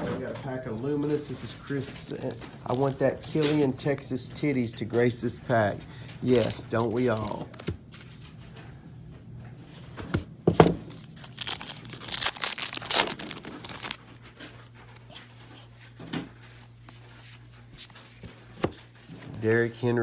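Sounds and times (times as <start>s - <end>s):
wrapper tearing and crinkling: 6.3s - 8.2s, 10.9s - 14.1s.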